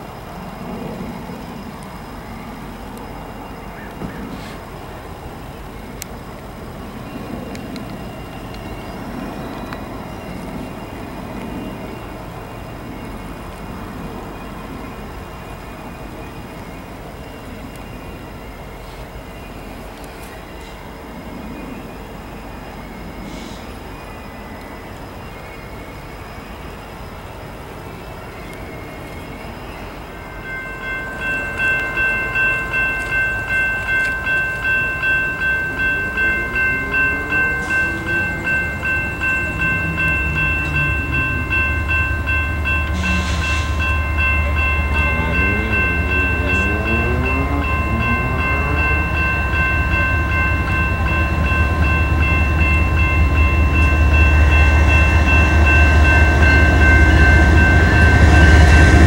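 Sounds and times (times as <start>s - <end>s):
freight train rumble: 0.0s - 59.0s
high ringing tone: 29.9s - 59.0s.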